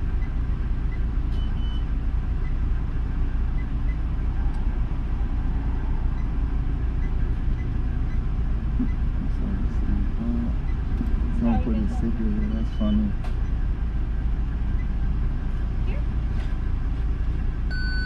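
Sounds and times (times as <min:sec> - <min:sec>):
car engine idling: 0:00.0 - 0:18.0
short high beep: 0:17.7 - 0:18.0.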